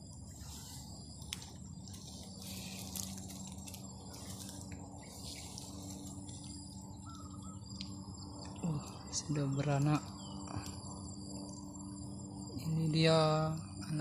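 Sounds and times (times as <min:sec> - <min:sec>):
faint rustling crackles: 0:00.0 - 0:09.0
insects trilling: 0:00.0 - 0:14.0.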